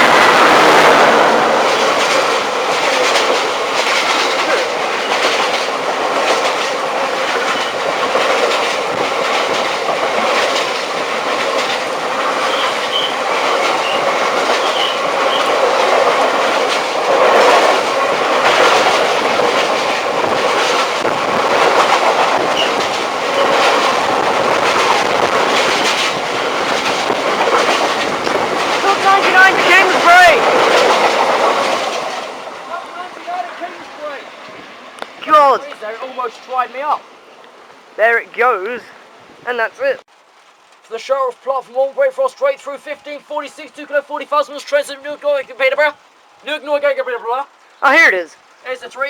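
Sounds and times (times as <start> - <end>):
wagon wheels clattering over rails: 0.0 - 37.1
diesel locomotive passing: 0.0 - 40.6
wheel squeal: 7.5 - 7.8, 12.4 - 15.6, 22.4 - 23.7.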